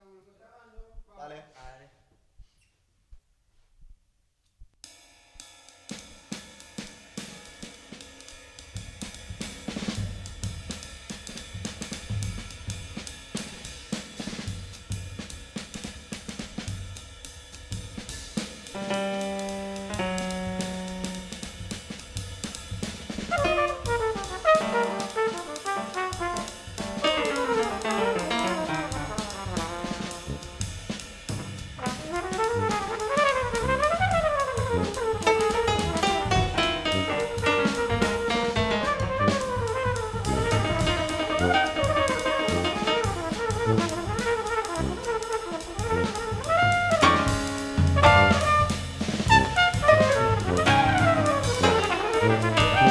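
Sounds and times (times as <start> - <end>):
drum kit with hi-hat and cymbals: 4.8 - 52.9
horns playing lines together: 18.8 - 21.6, 23.3 - 52.9.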